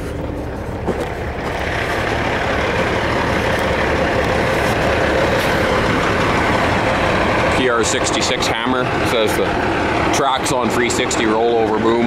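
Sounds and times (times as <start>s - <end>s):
large diesel engine running: 0.0s - 12.0s.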